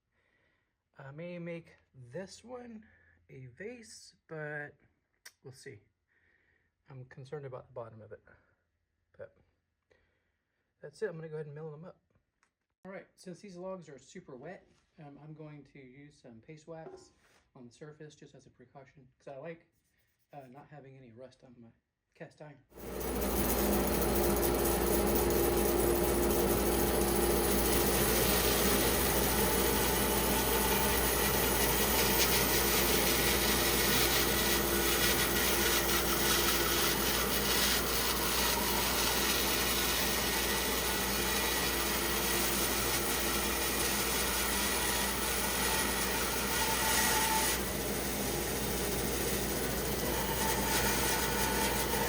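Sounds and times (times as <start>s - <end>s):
band saw cutting log: 22.8s - 52.0s.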